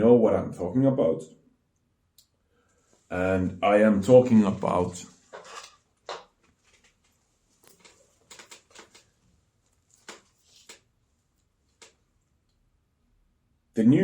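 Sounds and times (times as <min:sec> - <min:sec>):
comic book rustling and tapping: 0:04.1 - 0:10.9.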